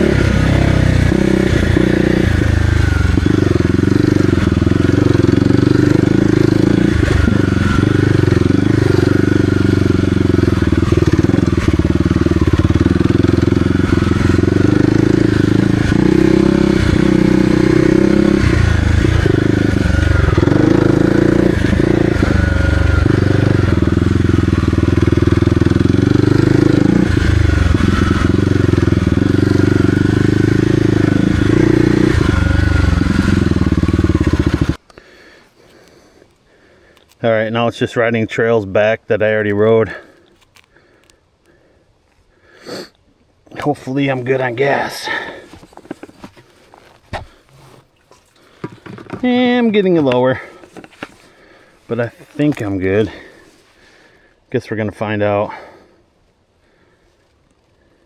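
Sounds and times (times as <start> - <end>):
motorcycle engine revving: 0.0 - 34.8, 43.5 - 54.2.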